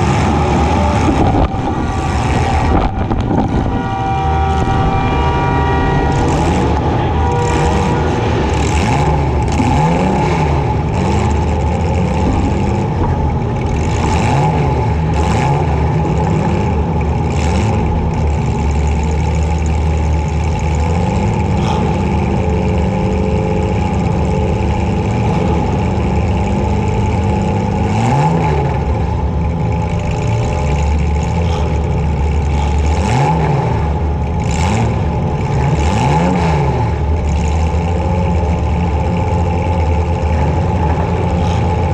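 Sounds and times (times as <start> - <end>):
car engine revving: 0.0 - 41.9
cars crashing bangs: 0.2 - 17.0.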